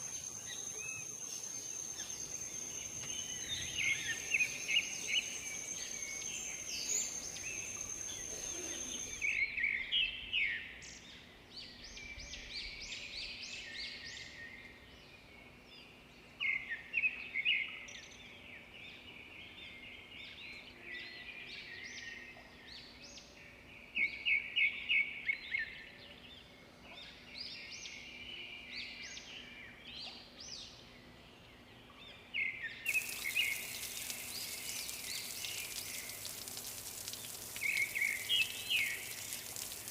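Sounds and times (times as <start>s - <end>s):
steady hiss: 0.0s - 9.4s, 32.9s - 39.9s
songbirds chirping: 0.0s - 39.9s
insect-like high buzz: 32.9s - 39.9s.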